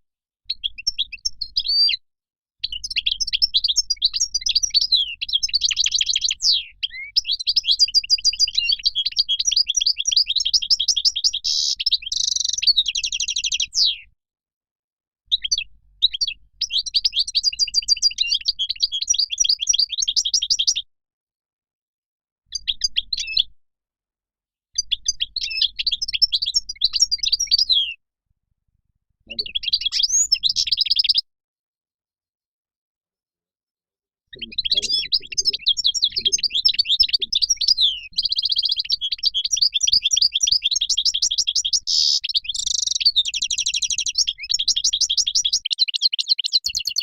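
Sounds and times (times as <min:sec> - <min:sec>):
finch twittering song: 0:00.5 - 0:02.0, 0:02.6 - 0:14.1, 0:15.3 - 0:20.8, 0:22.5 - 0:23.5, 0:24.8 - 0:28.0, 0:29.3 - 0:31.2, 0:34.3 - 0:47.0.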